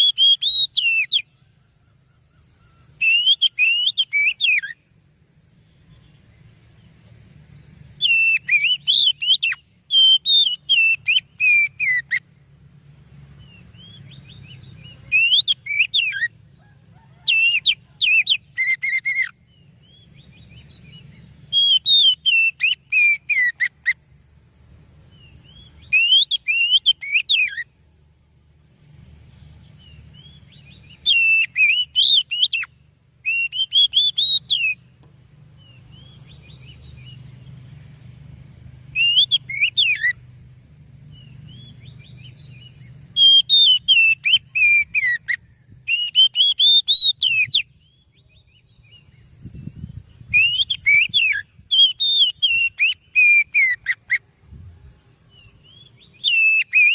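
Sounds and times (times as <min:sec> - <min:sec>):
bird singing whistled phrases: 0:00.0 - 0:01.4, 0:02.6 - 0:04.9, 0:07.7 - 0:12.3, 0:13.4 - 0:16.4, 0:17.2 - 0:24.0, 0:25.1 - 0:27.7, 0:29.8 - 0:34.8, 0:38.9 - 0:40.2, 0:41.1 - 0:54.3, 0:55.3 - 0:56.9
faint low hum: 0:00.0 - 0:56.9.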